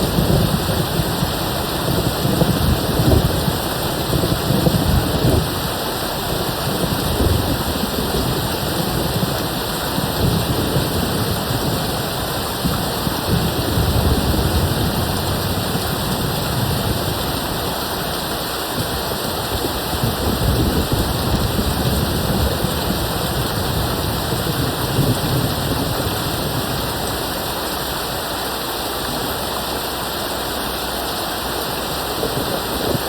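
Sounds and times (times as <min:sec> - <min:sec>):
distant thunder rumbling: 0:00.0 - 0:18.2, 0:18.8 - 0:27.3
rain hissing: 0:00.0 - 0:33.0.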